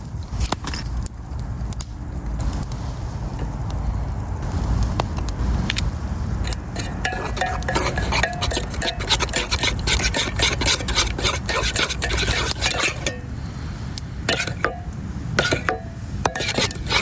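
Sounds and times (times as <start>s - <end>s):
utensil stirring in cooking pot: 6.4s - 13.4s, 14.2s - 17.0s.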